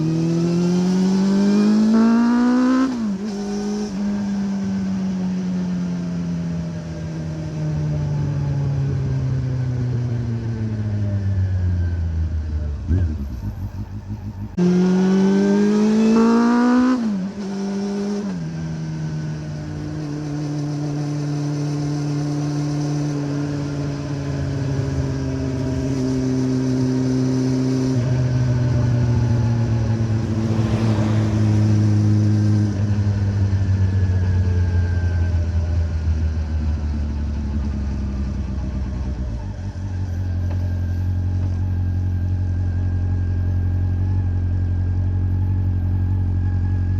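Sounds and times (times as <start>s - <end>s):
motorcycle engine revving: 0.0s - 7.9s, 12.5s - 34.8s.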